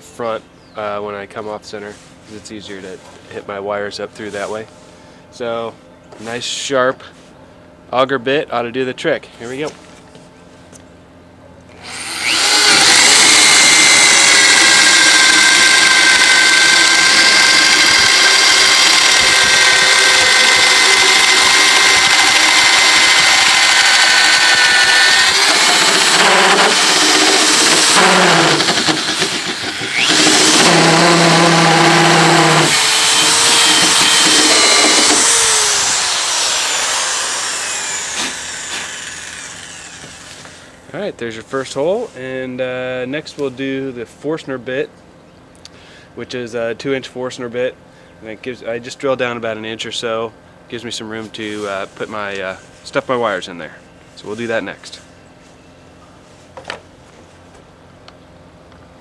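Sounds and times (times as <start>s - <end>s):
power drill boring into wood: 11.8s - 40.8s.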